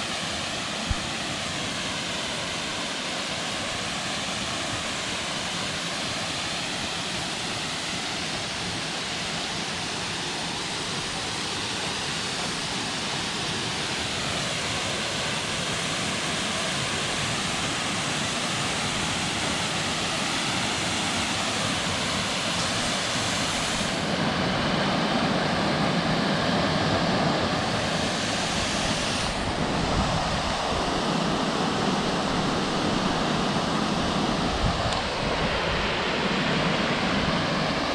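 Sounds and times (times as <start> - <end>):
waterfall rushing: 13.1 - 37.9.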